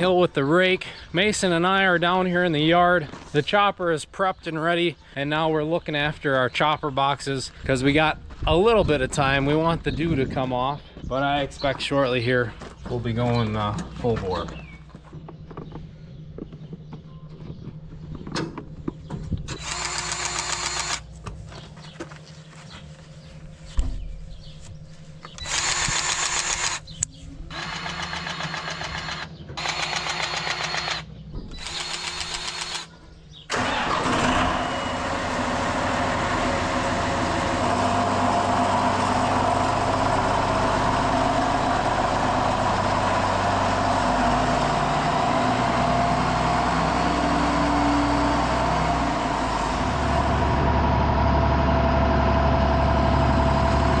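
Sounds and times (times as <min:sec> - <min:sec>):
tractor starter cranking: 0:33.5 - 0:35.1
diesel engine idling: 0:33.5 - 0:54.0.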